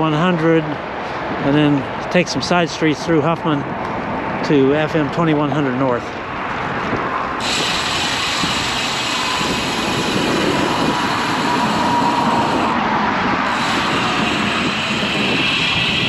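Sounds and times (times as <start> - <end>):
bicycle road noise: 0.0 - 16.0
traffic passing: 0.0 - 16.0
wind noise on microphone: 6.2 - 16.0.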